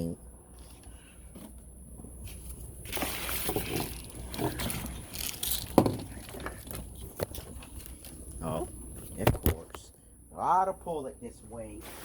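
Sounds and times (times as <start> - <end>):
handling rustling and scraping: 0.5 - 9.4
objects knocking: 5.6 - 7.6.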